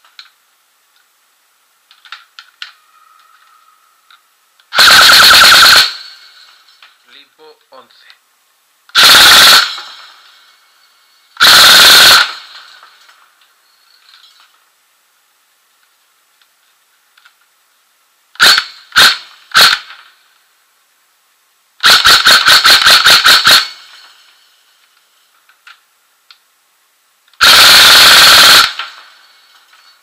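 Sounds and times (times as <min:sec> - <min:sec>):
airsoft gun firing: 0:04.7 - 0:06.2, 0:08.9 - 0:10.1, 0:11.4 - 0:12.7, 0:18.4 - 0:20.1, 0:21.8 - 0:23.9, 0:27.4 - 0:29.2.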